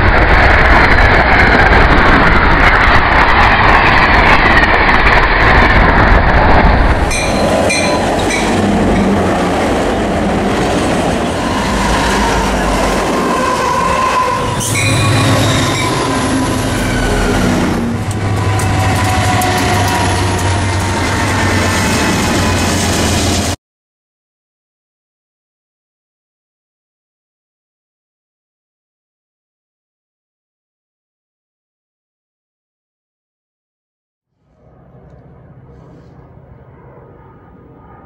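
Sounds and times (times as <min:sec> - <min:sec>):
locomotive engine drone: 0:00.0 - 0:23.6, 0:34.3 - 0:38.0
wheel-on-rail noise: 0:00.0 - 0:23.6.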